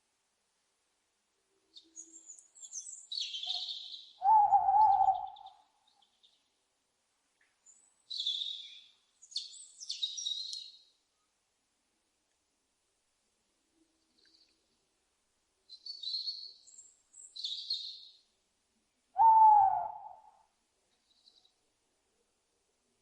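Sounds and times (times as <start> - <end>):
owl hooting: 3.4 - 5.7, 19.2 - 20.4
owl screeching: 4.2 - 5.4, 19.2 - 20.3.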